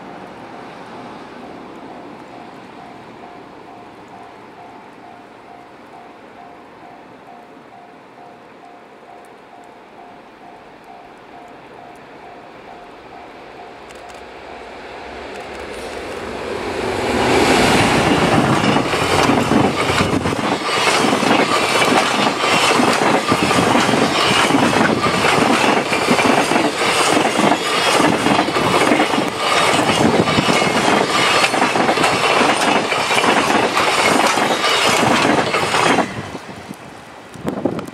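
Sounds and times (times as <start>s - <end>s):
freight train passing: 0.0s - 37.9s
wheels clattering over rails: 15.2s - 36.2s.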